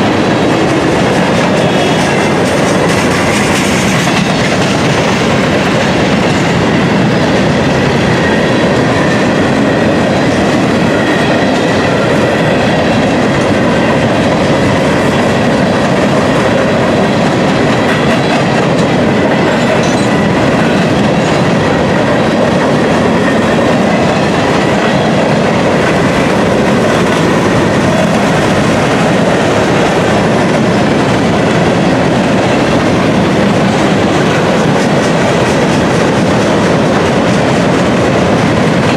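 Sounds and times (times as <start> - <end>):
clickety-clack over rail joints: 0.0 - 38.9
freight train wheels rumbling: 0.0 - 38.9.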